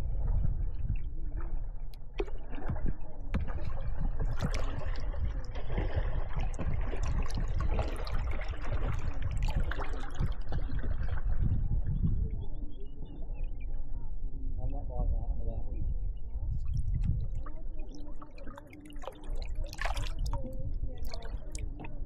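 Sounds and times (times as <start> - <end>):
water splashing around kayaks: 0.0 - 12.4, 16.5 - 22.0
steady low rumble: 9.0 - 22.0
paddles knocking on hulls: 19.1 - 21.9.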